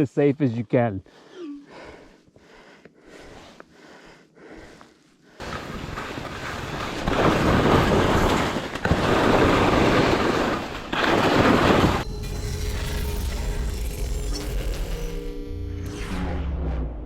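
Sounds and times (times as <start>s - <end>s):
skis sliding on snow: 5.4s - 12.0s.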